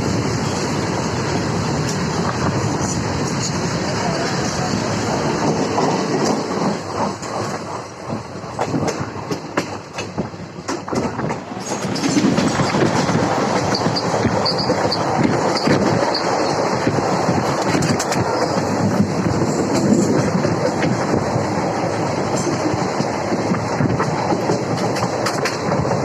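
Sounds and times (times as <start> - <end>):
train rumble: 0.0 - 26.0
train wheels clattering: 0.0 - 26.0
short high squeaks: 13.7 - 16.6.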